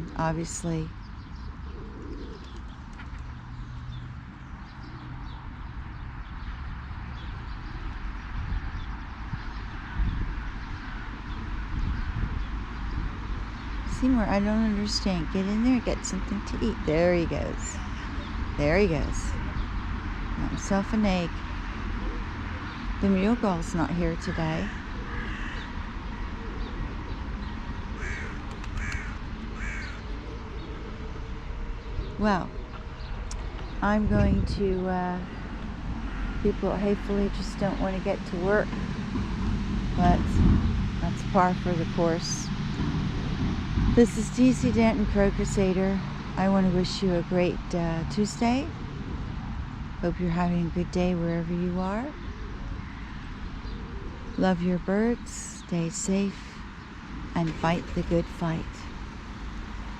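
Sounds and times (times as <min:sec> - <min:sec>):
small birds chirping: 0:00.0 - 0:38.8
low rumble: 0:00.0 - 0:56.6
pigeons cooing: 0:01.4 - 0:03.1, 0:23.6 - 0:32.9
crow cawing: 0:24.6 - 0:25.8, 0:28.0 - 0:30.0, 0:36.0 - 0:36.4.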